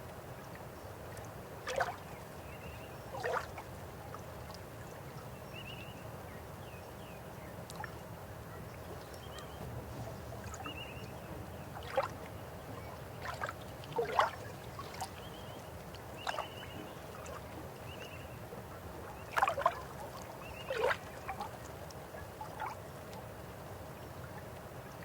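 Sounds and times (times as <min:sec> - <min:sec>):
water gurgles and splashes: 0:01.6 - 0:02.1, 0:03.1 - 0:03.8, 0:13.1 - 0:15.3, 0:19.2 - 0:21.7.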